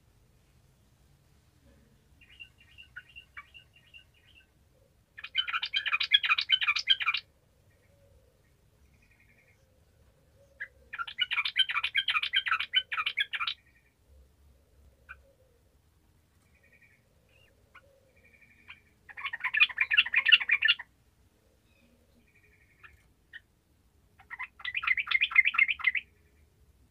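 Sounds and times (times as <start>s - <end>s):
bird rapid chattering song: 2.2s - 4.5s, 5.2s - 7.3s, 10.5s - 13.9s, 16.5s - 20.9s, 24.2s - 26.1s.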